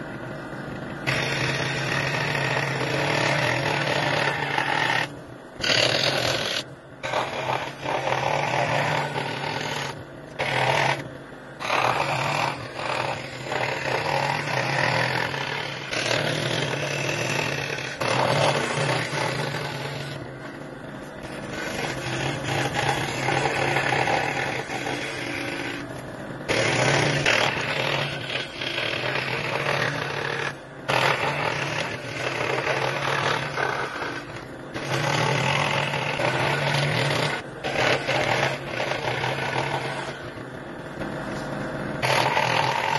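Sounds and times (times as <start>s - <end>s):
electric power tool working wood: 0.0s - 42.9s.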